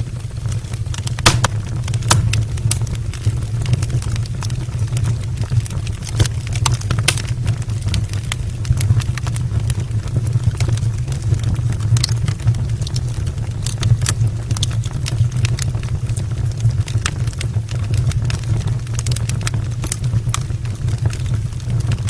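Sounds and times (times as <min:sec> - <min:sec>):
wood logs burning in fireplace: 0:00.0 - 0:22.0.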